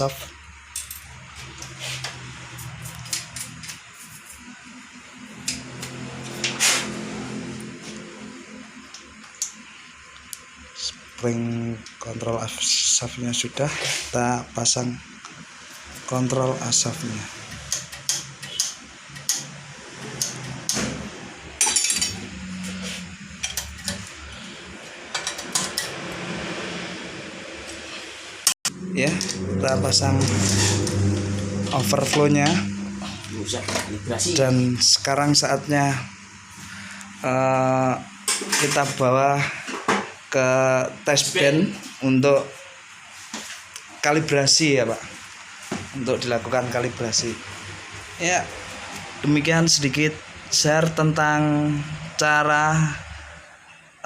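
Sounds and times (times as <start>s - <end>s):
steady low hum: 0.0s - 53.7s
faint steady hum: 31.2s - 43.8s.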